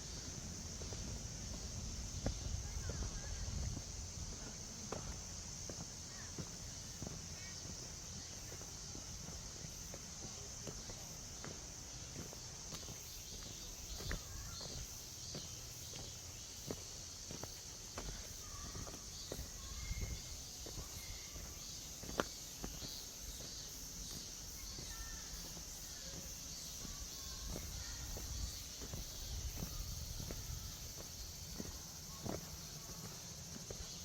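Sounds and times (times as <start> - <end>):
footsteps on forest trail: 0.0 - 34.0
high insect drone: 0.0 - 34.0.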